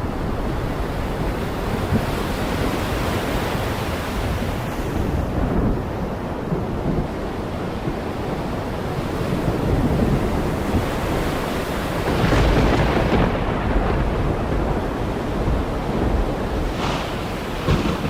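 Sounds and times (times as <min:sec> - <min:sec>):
heavy rain falling: 0:05.1 - 0:18.0.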